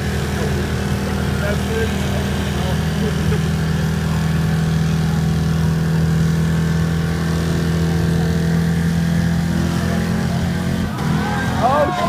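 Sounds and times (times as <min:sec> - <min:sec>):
pickup engine at high revs: 0:00.0 - 0:12.0.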